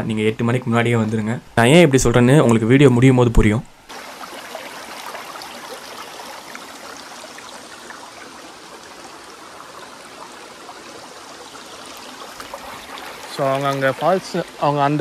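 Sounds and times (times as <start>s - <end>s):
stream water running: 3.7s - 15.0s.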